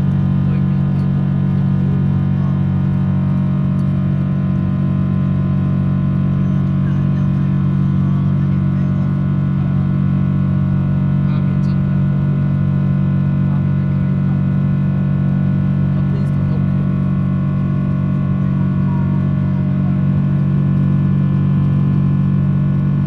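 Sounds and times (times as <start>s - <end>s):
airliner cabin engine drone: 0.0s - 12.1s.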